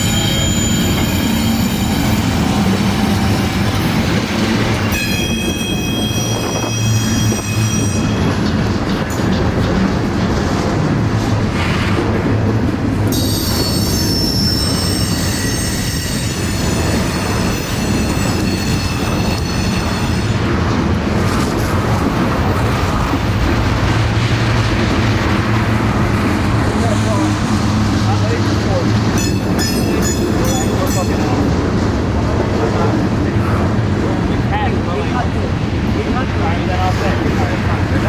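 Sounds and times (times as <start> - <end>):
train wheels squealing: 0.0 - 9.4, 13.1 - 20.5, 28.7 - 31.7
train rumbling on rails: 0.0 - 38.0.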